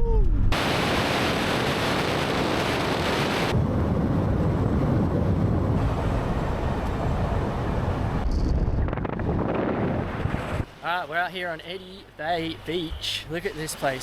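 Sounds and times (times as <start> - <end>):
wind blowing across microphone: 0.0 - 10.7.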